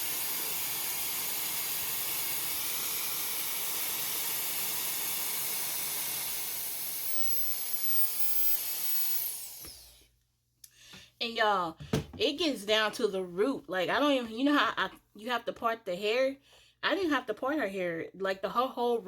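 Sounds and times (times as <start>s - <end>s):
hair dryer running: 0.0s - 10.1s.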